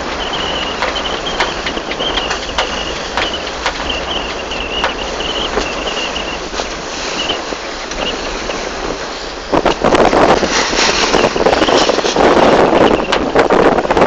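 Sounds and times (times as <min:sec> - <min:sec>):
water rushing along hull: 0:00.0 - 0:14.0
wind buffeting microphone: 0:00.0 - 0:14.0.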